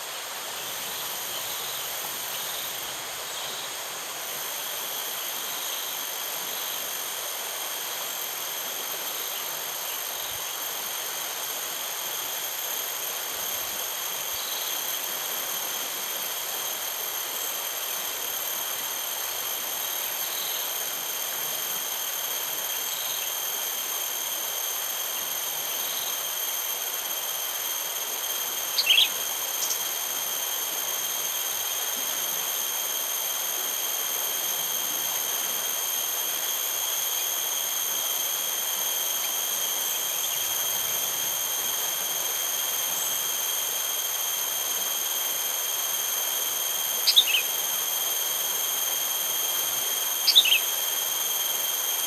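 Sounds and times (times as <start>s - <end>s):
insects droning: 0.0s - 52.0s
faint bird chirps: 28.7s - 29.8s, 47.0s - 47.6s, 50.2s - 50.7s
loud bird call: 47.1s - 47.5s, 50.3s - 50.6s.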